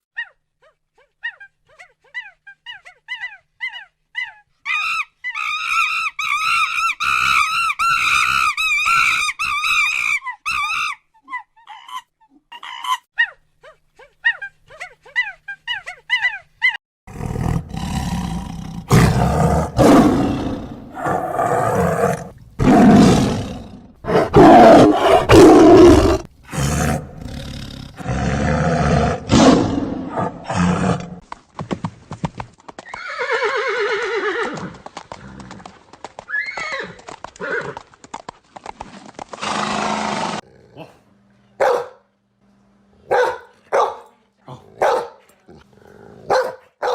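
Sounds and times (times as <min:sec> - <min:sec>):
animal roaring: 0:17.1 - 0:31.2.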